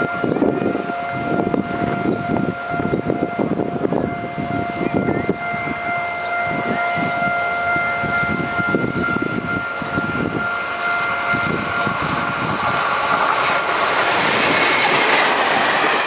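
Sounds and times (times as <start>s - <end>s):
high-pitched whine: 0.0s - 16.0s
train coaches rumbling: 0.0s - 16.0s.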